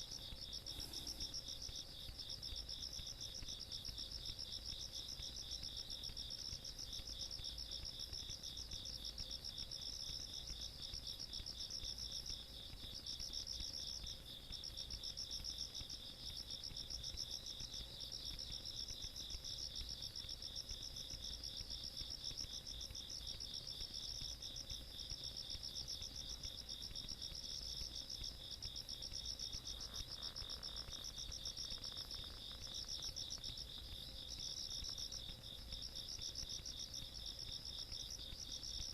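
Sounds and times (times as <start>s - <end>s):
low pulsing insect trill: 0.0s - 38.9s
high insect trill: 13.2s - 38.9s.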